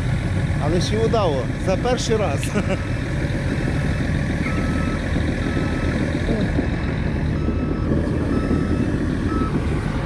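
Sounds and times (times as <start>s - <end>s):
truck engine running: 0.0s - 10.0s
reversing alarm beeping: 4.4s - 6.1s, 7.3s - 9.7s.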